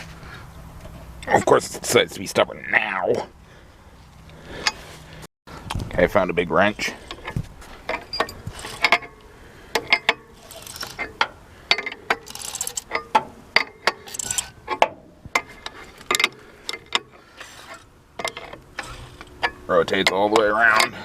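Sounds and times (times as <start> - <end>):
wrench turning engine metallic clanks: 4.2 - 4.9, 6.7 - 21.0
metal scraping: 6.6 - 21.0.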